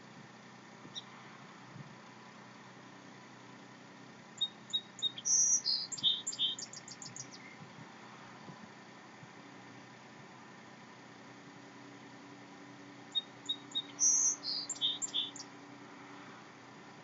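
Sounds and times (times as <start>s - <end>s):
songbird singing: 0.8s - 1.2s, 4.3s - 7.7s, 13.0s - 15.6s.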